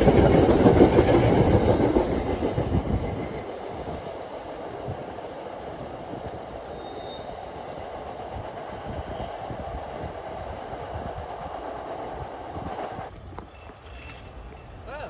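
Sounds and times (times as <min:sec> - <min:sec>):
train wheels rumbling on rail: 0:00.0 - 0:15.0
high wheel squeal: 0:06.6 - 0:09.4, 0:13.4 - 0:15.0.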